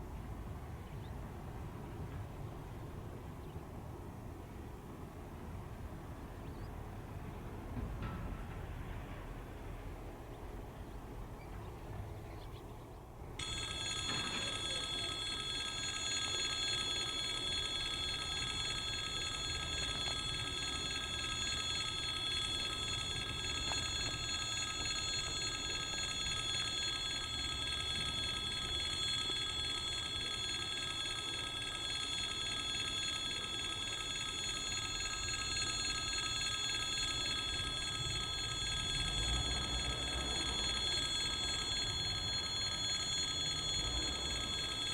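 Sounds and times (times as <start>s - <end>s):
level crossing warning bell ringing: 13.4s - 44.9s.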